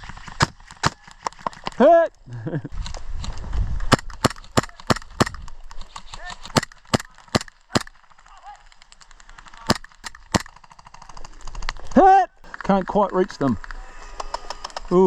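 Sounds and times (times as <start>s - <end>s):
airsoft gun shots cracking: 3.9s - 5.4s, 6.1s - 8.0s, 9.6s - 10.6s.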